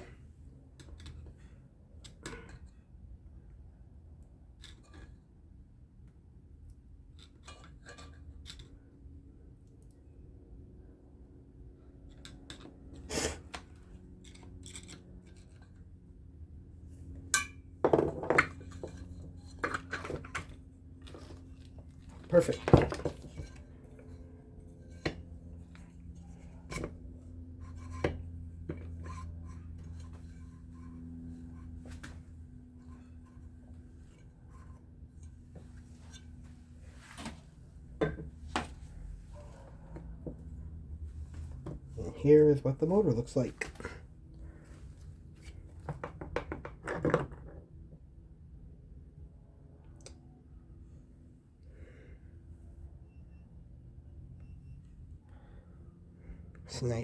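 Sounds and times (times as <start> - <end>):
low hum: 0.0 - 46.1, 47.3 - 56.9
metal motor parts clinking: 13.6 - 15.9
parts knocking on a workbench: 17.8 - 19.0, 38.0 - 38.7, 45.8 - 47.6.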